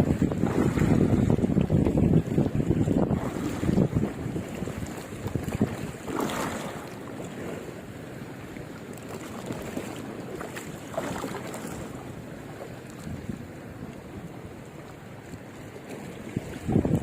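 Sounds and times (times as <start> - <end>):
wind buffeting microphone: 0.0 - 7.7, 11.1 - 14.6, 16.0 - 17.0
sea water washing: 0.0 - 17.0.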